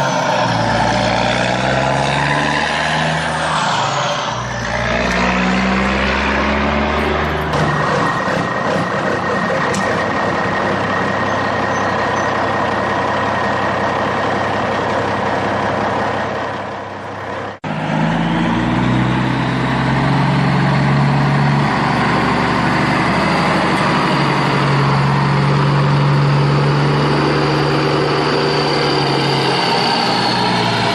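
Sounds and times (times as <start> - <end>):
truck engine running: 0.0 - 30.9
high whine: 3.2 - 16.0.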